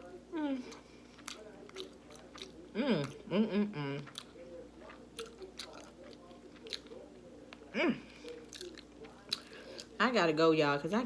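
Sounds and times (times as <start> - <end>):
person chewing crunchy food: 0.6 - 3.3, 3.9 - 10.0
person humming: 2.8 - 4.1.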